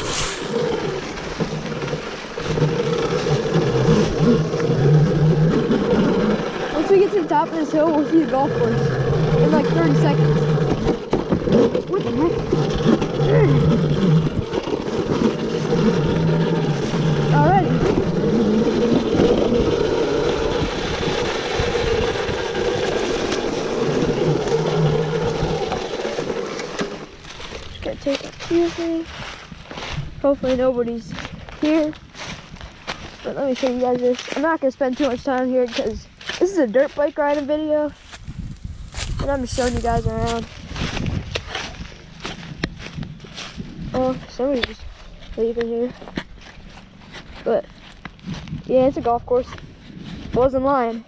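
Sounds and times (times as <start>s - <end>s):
rushing noise: 0.0s - 1.5s
electric motor whining: 0.0s - 29.9s
low irregular thumps: 0.0s - 50.8s.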